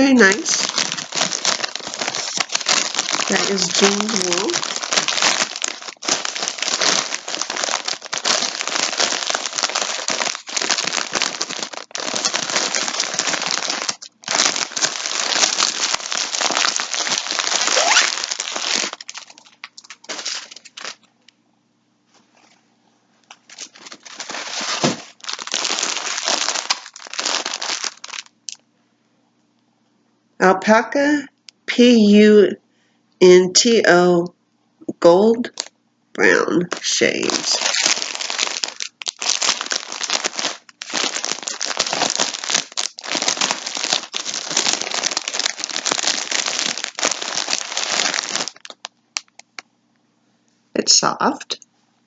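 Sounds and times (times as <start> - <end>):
plastic packaging crinkling: 0.0 - 21.2, 23.3 - 28.6, 35.4 - 35.7, 36.6 - 49.6.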